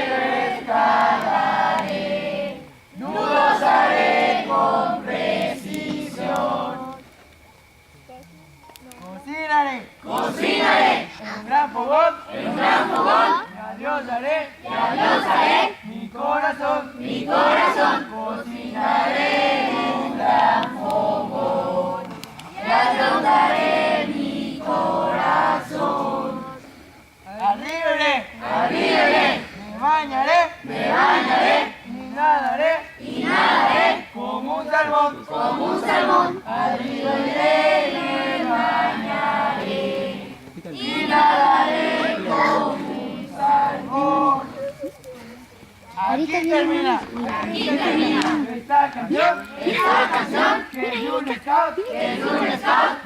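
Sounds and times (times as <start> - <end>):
children singing in unison: 0.0 - 7.0, 17.0 - 26.6, 34.9 - 44.6, 49.1 - 50.9, 52.0 - 53.0.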